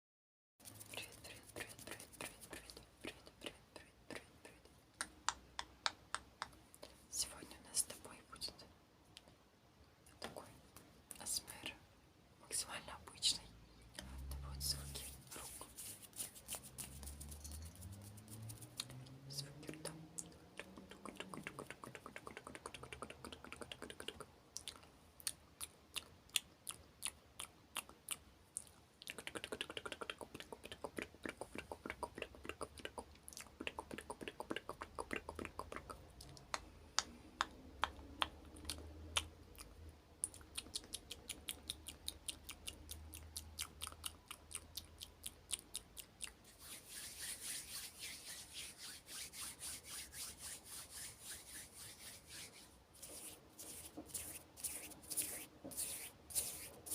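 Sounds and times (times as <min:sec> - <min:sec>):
wet mouth clicks and smacks: 0:19.6 - 0:46.5.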